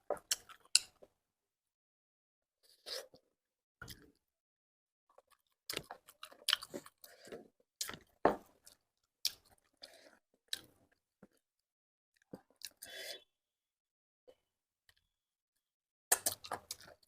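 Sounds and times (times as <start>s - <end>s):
person chewing crunchy food: 5.1s - 11.4s, 16.1s - 17.0s.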